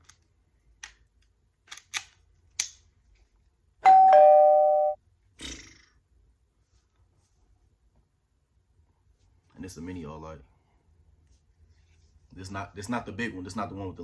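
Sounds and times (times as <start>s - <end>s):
two-note electronic chime: 3.9s - 5.0s.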